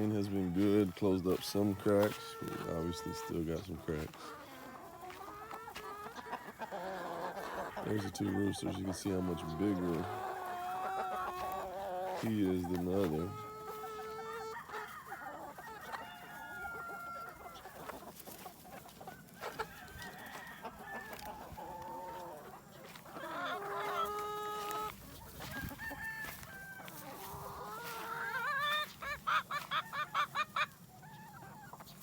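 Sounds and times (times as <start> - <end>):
roosters crowing: 0.0 - 31.8
hens clucking: 0.0 - 32.0.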